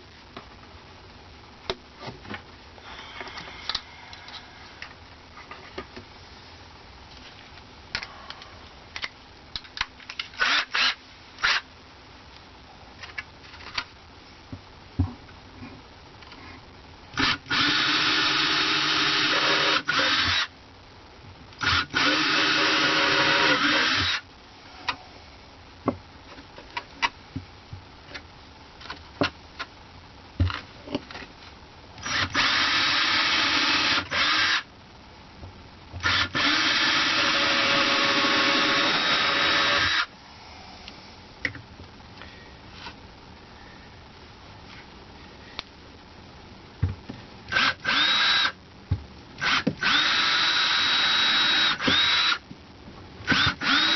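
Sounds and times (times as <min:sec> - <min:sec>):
power drill boring into wood: 0:10.4 - 0:11.6, 0:17.2 - 0:20.5, 0:21.6 - 0:24.2, 0:32.0 - 0:34.6, 0:36.0 - 0:40.1, 0:47.5 - 0:48.6, 0:49.4 - 0:52.4, 0:53.3 - 0:53.9.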